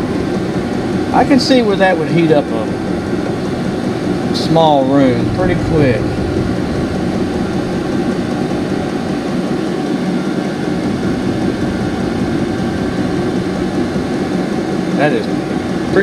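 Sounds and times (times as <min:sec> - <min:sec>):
diesel air heater rushing hum: 0:00.0 - 0:16.0.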